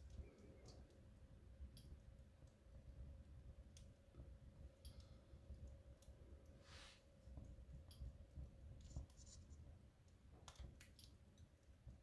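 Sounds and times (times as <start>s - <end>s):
wood fire crackling: 0.0s - 12.0s
fire hiss: 6.6s - 7.0s.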